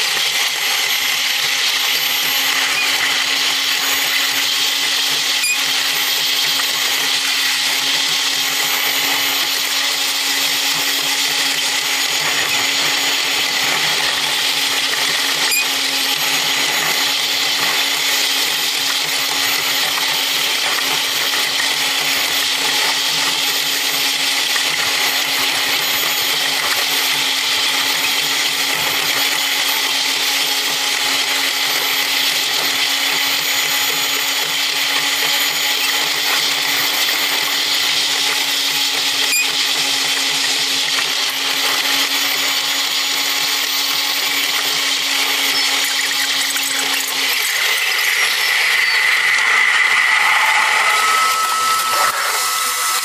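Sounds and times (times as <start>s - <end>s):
railcar high-pitched whir: 0.0s - 8.0s, 15.2s - 15.8s, 44.3s - 53.0s.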